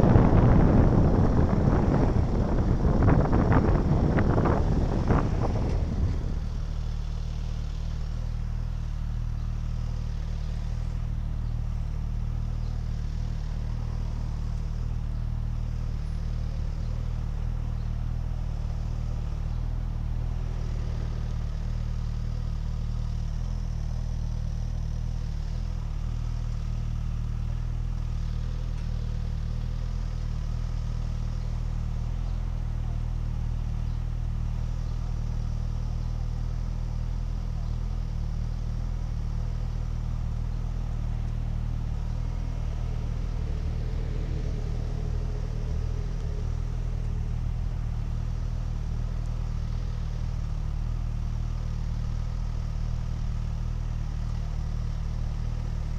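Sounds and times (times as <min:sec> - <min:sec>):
road noise: 0:00.0 - 0:55.9
vehicle engine drone: 0:00.0 - 0:55.9.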